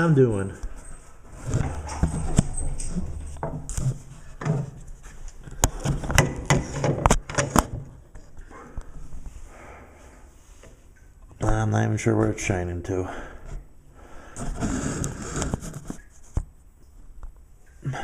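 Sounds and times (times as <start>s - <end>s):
equipment handling rubbing and bumping: 0.6s - 7.9s
sharp clicks and knocks: 1.4s - 4.9s, 5.5s - 8.2s.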